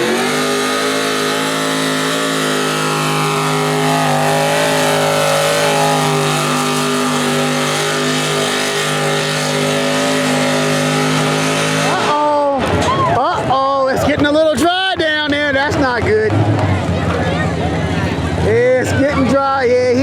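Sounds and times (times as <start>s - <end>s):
tractor engine at full throttle: 0.0s - 20.0s.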